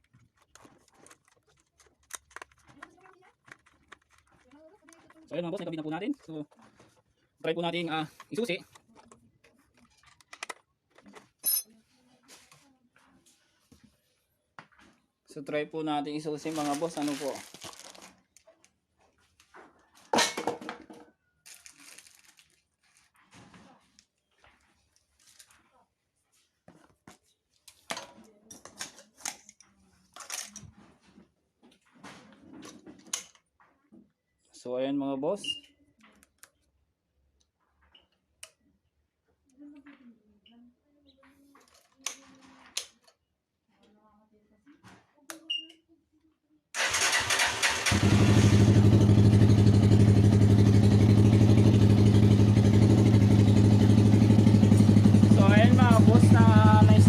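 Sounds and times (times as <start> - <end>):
small hard parts clicking: 0.0 - 6.0
motorcycle engine starting and idling: 46.8 - 57.0.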